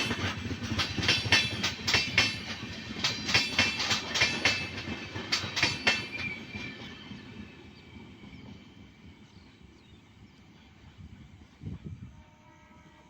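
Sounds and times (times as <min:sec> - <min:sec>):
train wheels clicking over rail joints: 0:00.0 - 0:09.1
train rumble: 0:00.0 - 0:13.0.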